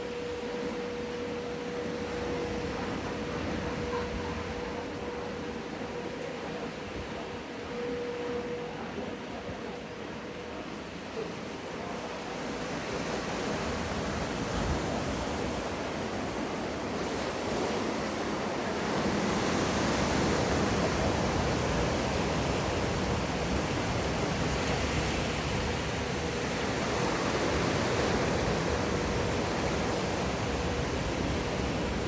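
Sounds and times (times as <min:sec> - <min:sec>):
wave rushing water: 0:11.0 - 0:32.0.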